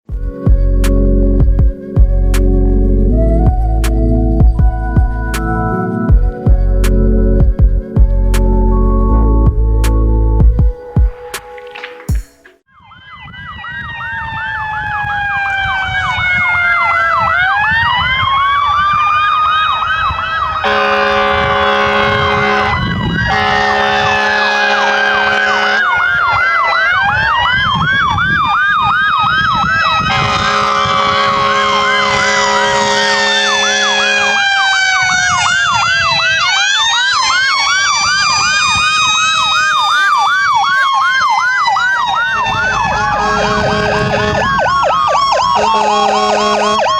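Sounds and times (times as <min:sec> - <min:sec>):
electronic sirens yelping: 0:12.7 - 0:46.9
air horn blasts: 0:20.6 - 0:26.8, 0:29.9 - 0:35.2, 0:39.6 - 0:46.9.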